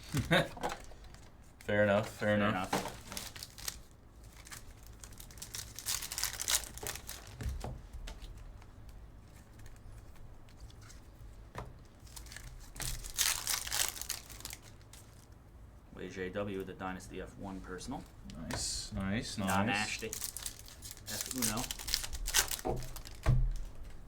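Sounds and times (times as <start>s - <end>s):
foil wrappers crinkling and tearing: 0.0s - 7.6s, 12.0s - 15.4s, 19.4s - 24.0s
handling rustle: 0.0s - 15.4s, 19.4s - 24.0s.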